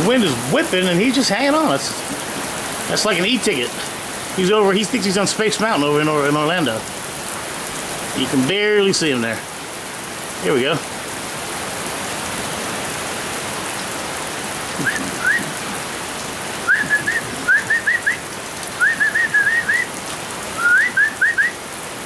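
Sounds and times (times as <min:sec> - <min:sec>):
heavy rain: 0:00.0 - 0:22.0
short rising whistled notes: 0:14.8 - 0:15.5, 0:16.7 - 0:18.2, 0:18.8 - 0:19.9, 0:20.6 - 0:21.6.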